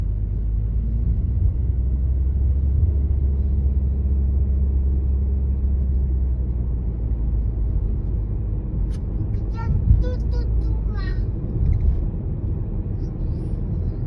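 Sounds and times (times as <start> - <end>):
car low rumble: 0.0 - 14.0.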